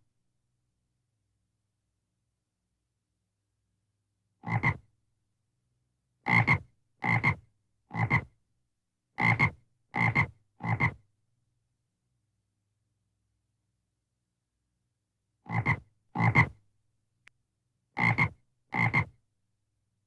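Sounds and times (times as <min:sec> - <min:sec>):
frog croaking: 0:04.4 - 0:04.8, 0:15.5 - 0:16.5, 0:18.0 - 0:19.1.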